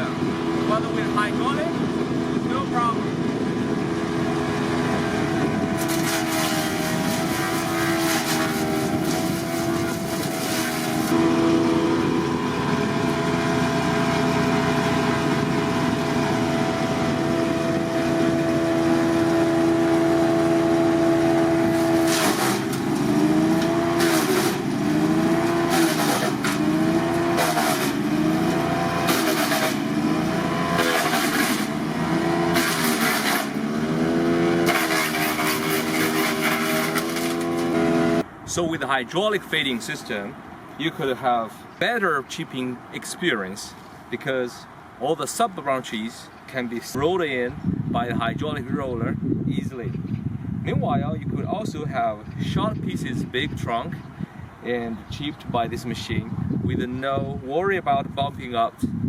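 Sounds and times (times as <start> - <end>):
wood chipper engine running: 0.0 - 38.3
rotor cracking and shredding wood: 4.4 - 38.3.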